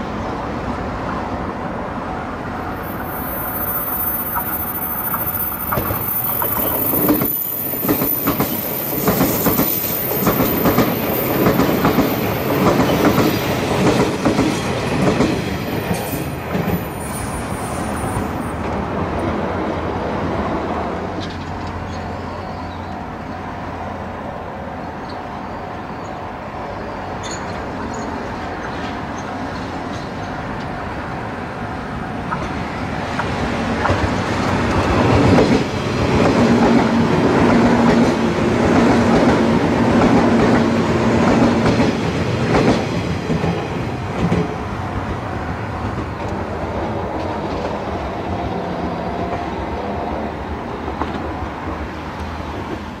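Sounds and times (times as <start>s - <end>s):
electric train passing: 0.0s - 53.0s.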